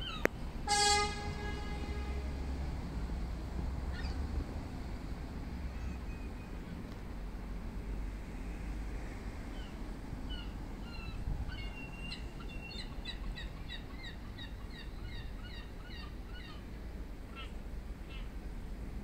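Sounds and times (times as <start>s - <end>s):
low outdoor rumble: 0.0s - 19.0s
bird chirping: 10.3s - 16.6s.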